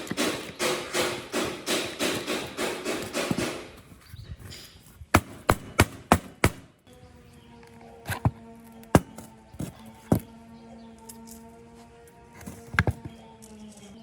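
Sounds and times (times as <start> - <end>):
hand tool scraping strokes: 0.0 - 5.1.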